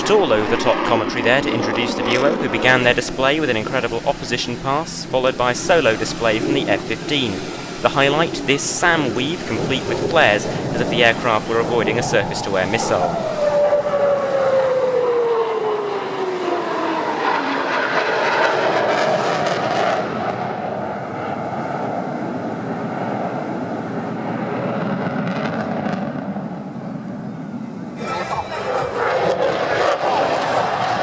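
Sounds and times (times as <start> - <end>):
jet whine falling in pitch: 0.0 - 21.1, 28.0 - 31.0
jet engine crackle: 0.0 - 27.2, 28.1 - 31.0
jet engine rumble: 0.0 - 31.0.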